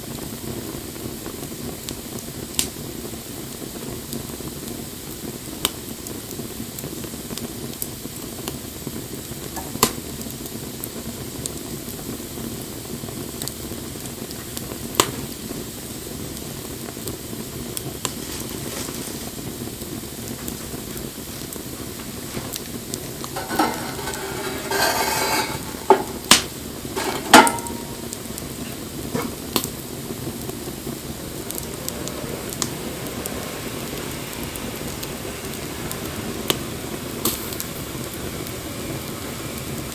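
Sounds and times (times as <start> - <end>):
wood fire crackling and popping: 0.0 - 39.9
rustling: 18.1 - 19.5, 20.3 - 29.5.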